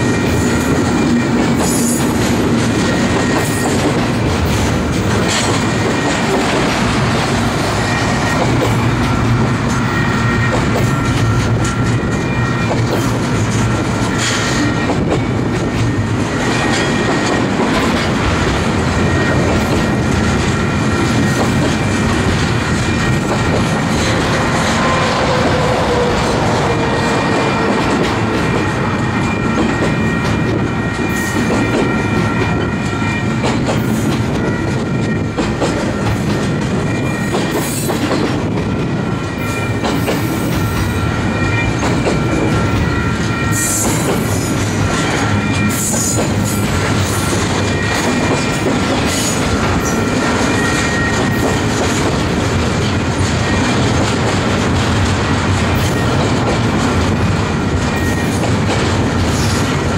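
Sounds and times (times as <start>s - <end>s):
faint clanks from train cars: 0.0s - 59.9s
train wheels rumbling and clicking: 0.0s - 59.9s.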